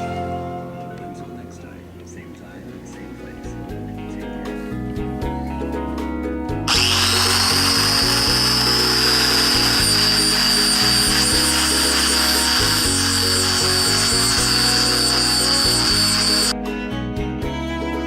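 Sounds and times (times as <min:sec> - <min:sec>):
background music: 0:00.0 - 0:18.0
power tool whining: 0:06.7 - 0:16.6.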